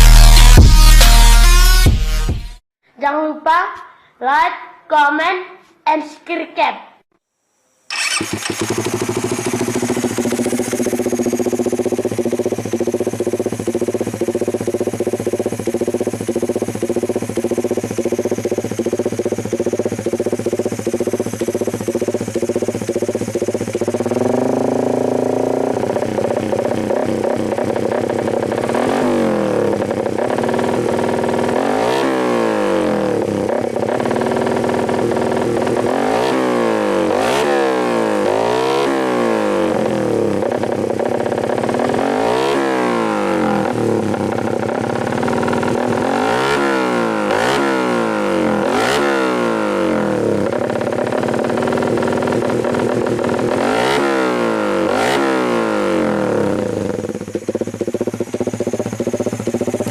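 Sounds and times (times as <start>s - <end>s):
motorcycle engine idling with throttle blips: 7.9s - 59.9s.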